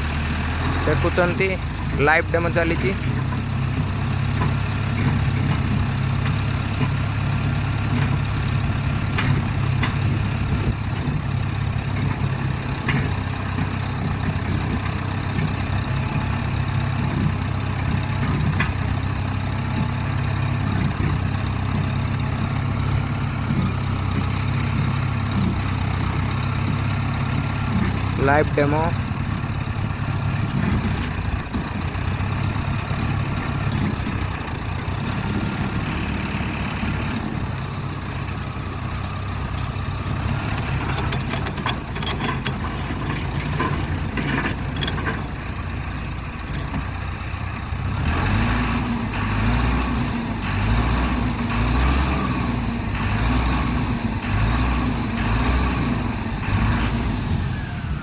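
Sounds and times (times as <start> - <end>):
post hole digger throbbing: 0.0 - 58.0
tractor diesel engine running: 0.0 - 58.0
sharp clicks and knocks: 1.8 - 38.3, 39.6 - 45.5.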